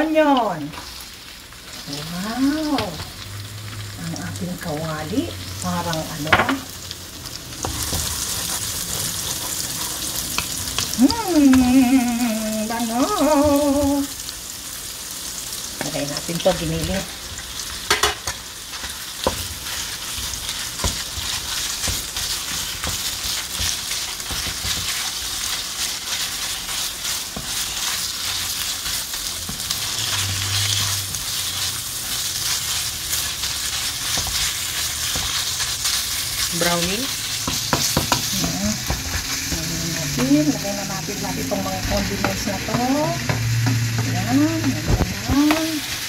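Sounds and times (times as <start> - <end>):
meat sizzling in hot oil: 0.0 - 46.0
wooden spoon knocking a pan: 37.4 - 39.6, 42.2 - 45.7.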